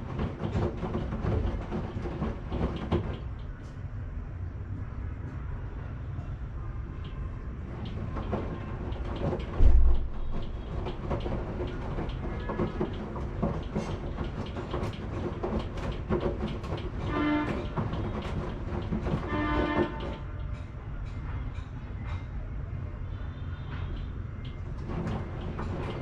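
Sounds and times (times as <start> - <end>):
washing machine drum tumbling: 0.0 - 3.6, 7.1 - 20.6, 24.4 - 26.0
heavy thump: 9.2 - 20.0.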